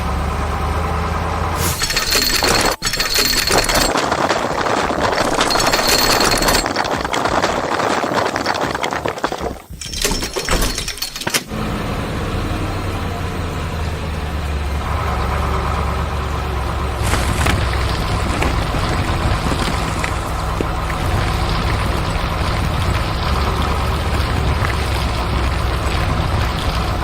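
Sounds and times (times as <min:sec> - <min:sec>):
heavy vehicle engine clatter: 0:00.0 - 0:27.0
low engine rumble: 0:11.5 - 0:27.0.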